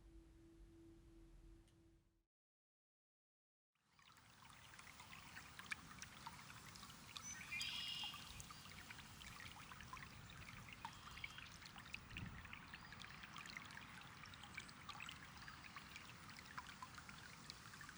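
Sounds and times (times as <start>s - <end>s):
trickling bubbling water: 4.1s - 17.9s
water drips: 4.1s - 17.9s
bird call: 7.2s - 8.4s.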